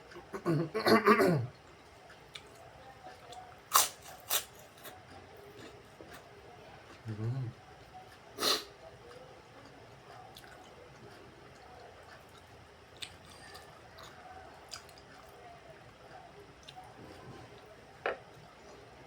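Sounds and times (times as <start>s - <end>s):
wet chewing: 11.5s - 15.4s.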